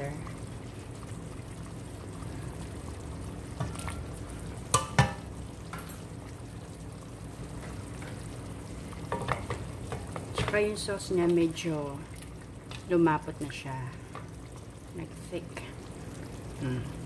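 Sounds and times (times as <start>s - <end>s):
chicken wings sizzling in a pan: 0.0s - 17.0s.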